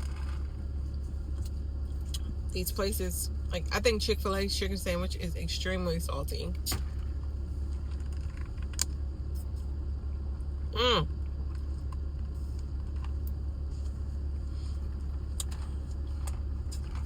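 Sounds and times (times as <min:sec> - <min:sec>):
car idling hum: 0:00.0 - 0:17.0.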